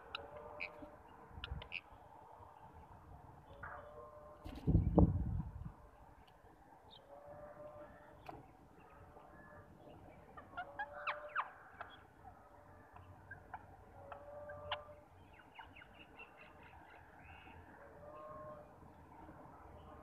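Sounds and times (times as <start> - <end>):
faint outdoor background noise: 0.0 - 20.0.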